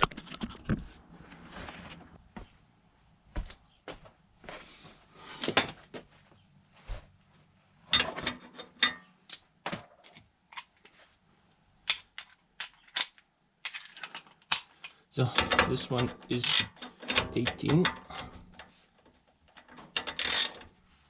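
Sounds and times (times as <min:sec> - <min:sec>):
metal hand tools clinking: 0:15.2 - 0:18.6.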